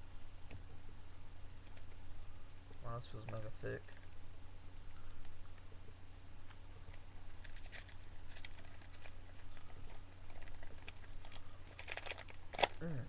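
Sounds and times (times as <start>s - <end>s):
steady low hum: 0.0s - 13.0s
foil wrapper crinkling: 6.9s - 12.8s.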